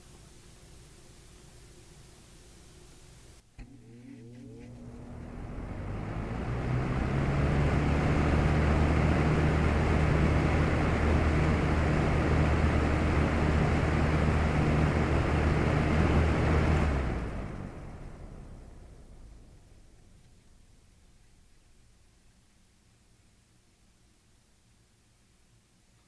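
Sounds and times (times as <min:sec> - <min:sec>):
box fan whirring: 0:00.0 - 0:22.1
low motor hum: 0:03.6 - 0:22.0.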